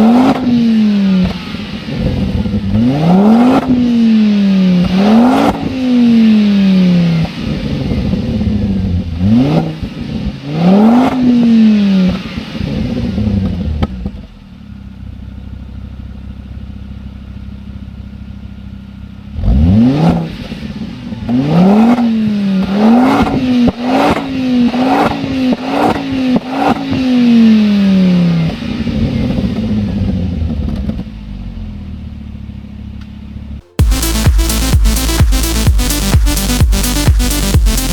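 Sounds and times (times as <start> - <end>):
car engine revving: 0.0 - 13.2, 33.6 - 37.9.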